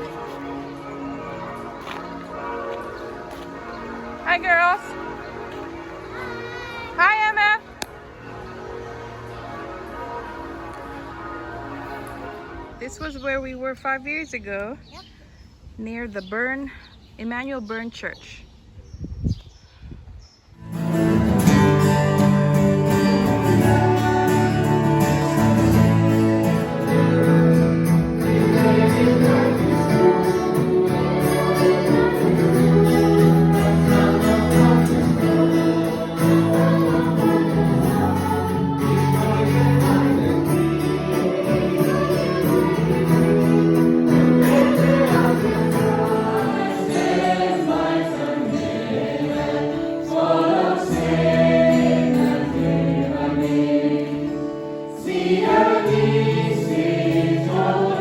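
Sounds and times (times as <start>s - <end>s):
instrumental backing: 20.6s - 48.0s
group singing worship song: 21.4s - 58.0s.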